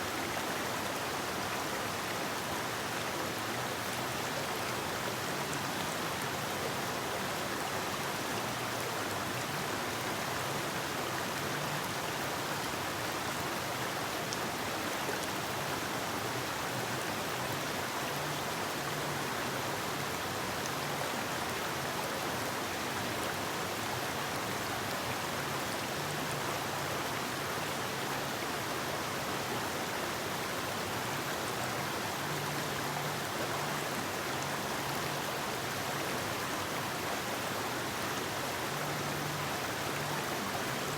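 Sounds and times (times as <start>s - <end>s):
river water rushing over rocks: 0.0s - 40.9s.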